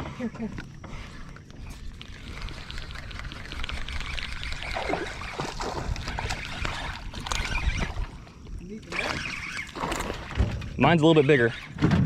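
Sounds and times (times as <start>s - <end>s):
water splashing and trickling: 1.6s - 11.1s.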